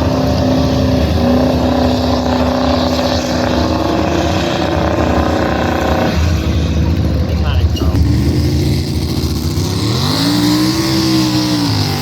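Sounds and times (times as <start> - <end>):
truck engine at high revs: 0.0 - 12.0.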